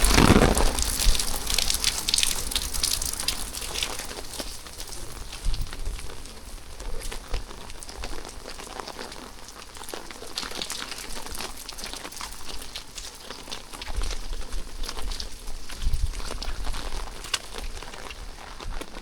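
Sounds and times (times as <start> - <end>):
low thuds: 0.0 - 2.2
rain pattering: 0.0 - 19.0.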